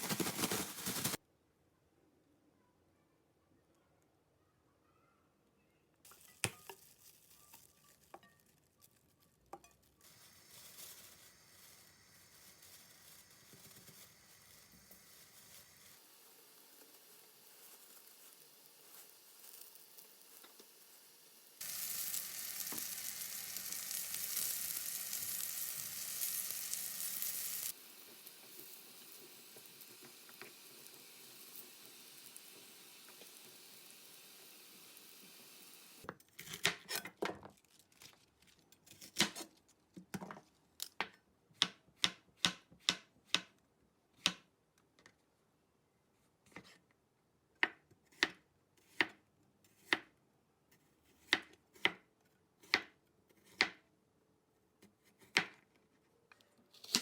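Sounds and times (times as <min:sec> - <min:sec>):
food sizzling in a frying pan: 0:00.0 - 0:01.2, 0:10.0 - 0:36.1.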